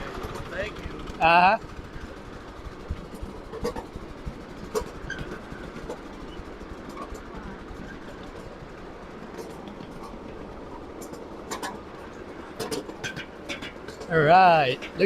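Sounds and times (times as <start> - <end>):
miniature train rolling on track: 0.0 - 15.0.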